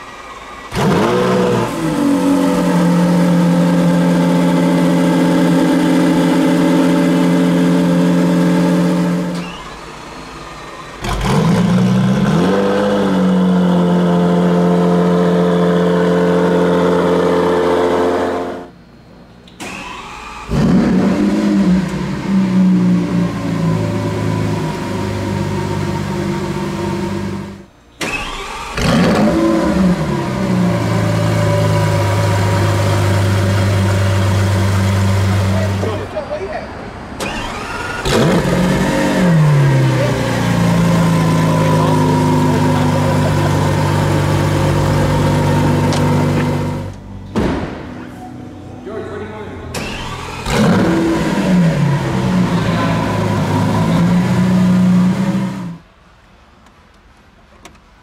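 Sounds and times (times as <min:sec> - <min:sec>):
engine starting with loud flare: 0:00.0 - 0:18.7, 0:19.6 - 0:36.0, 0:37.2 - 0:46.9, 0:49.7 - 0:55.8
engine revving: 0:00.0 - 0:18.8, 0:19.6 - 0:36.1, 0:37.2 - 0:47.1, 0:49.7 - 0:55.9
car engine idling: 0:00.0 - 0:36.3, 0:37.2 - 0:48.0, 0:48.8 - 0:58.0.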